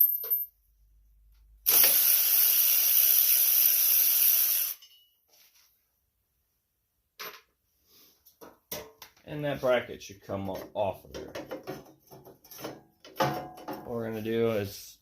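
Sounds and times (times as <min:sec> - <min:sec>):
ratchet wrench clicking: 0:01.7 - 0:04.8.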